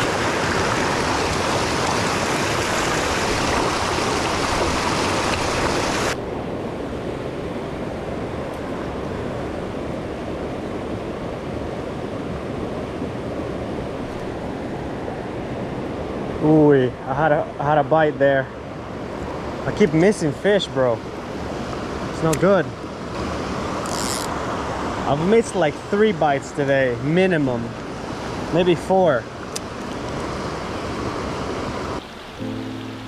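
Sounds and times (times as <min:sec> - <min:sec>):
water rushing over rocks: 0:00.0 - 0:06.2, 0:31.7 - 0:33.0.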